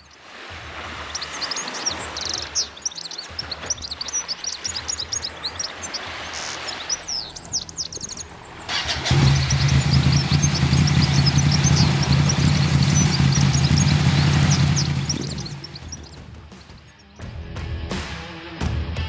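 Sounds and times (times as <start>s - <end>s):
many birds chirping and trilling: 0.0s - 17.3s
low uneven rumble: 7.3s - 16.3s.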